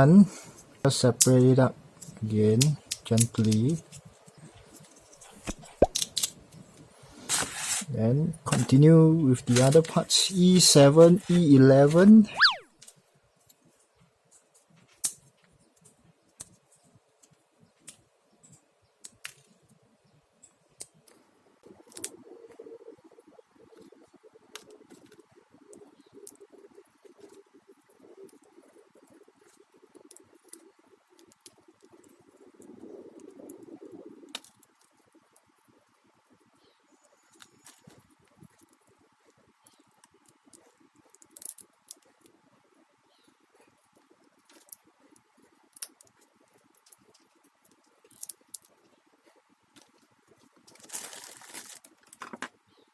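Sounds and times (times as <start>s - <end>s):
plastic parts clicking: 2.0s - 4.0s.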